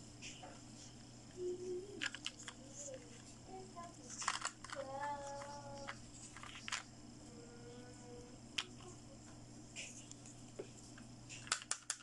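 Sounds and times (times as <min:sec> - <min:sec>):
plastic toy pieces clicking: 0:02.0 - 0:02.6, 0:04.1 - 0:06.8, 0:11.4 - 0:12.0.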